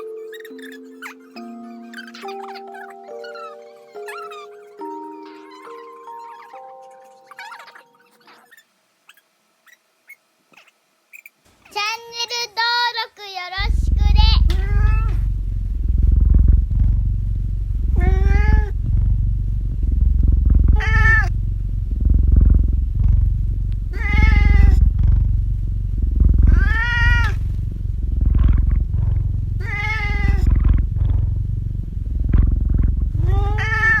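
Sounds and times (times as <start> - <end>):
cat purring: 13.6 - 34.0
cat meowing: 13.7 - 15.2, 18.0 - 18.7, 20.8 - 21.3, 23.9 - 24.8, 26.5 - 27.4, 29.6 - 30.6, 33.2 - 34.0.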